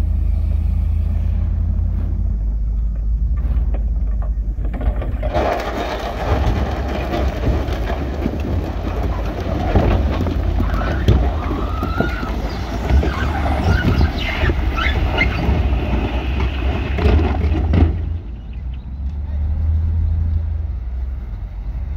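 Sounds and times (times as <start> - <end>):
heavy diesel machinery rumble: 0.0 - 21.9
metallic clanking and knocks: 2.7 - 18.8
high squeals: 10.3 - 18.9.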